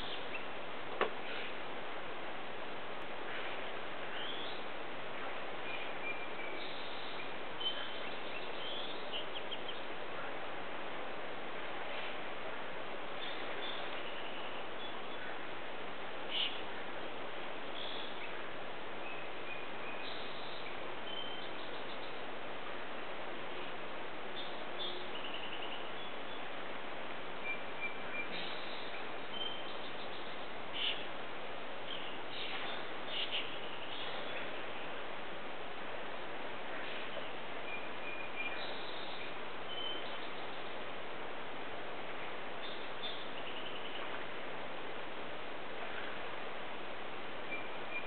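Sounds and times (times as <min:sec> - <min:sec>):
birdsong: 0:00.0 - 0:01.7, 0:03.2 - 0:10.5, 0:13.0 - 0:15.6, 0:16.2 - 0:16.9, 0:17.6 - 0:22.4, 0:23.4 - 0:26.6, 0:27.3 - 0:35.0, 0:36.8 - 0:41.0, 0:42.1 - 0:44.4, 0:47.3 - 0:48.0
steady background hiss: 0:00.0 - 0:48.0.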